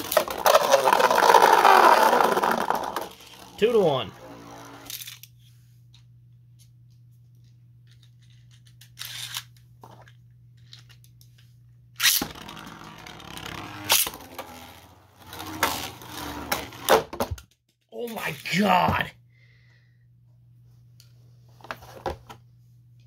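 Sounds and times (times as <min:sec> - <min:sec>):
spinning tops whirring and clashing: 0:00.0 - 0:03.6, 0:12.0 - 0:16.9
low steady hum: 0:00.0 - 0:17.0, 0:18.0 - 0:23.0.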